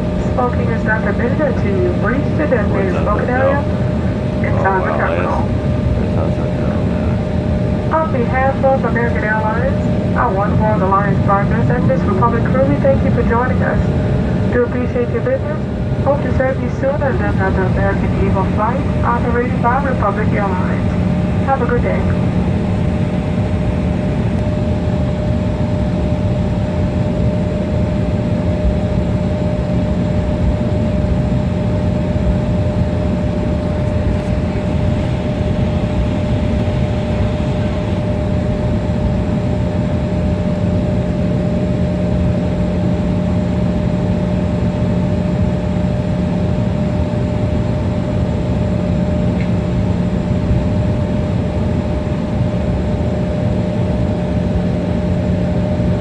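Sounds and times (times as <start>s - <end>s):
airliner cabin engine noise: 0.0s - 56.0s.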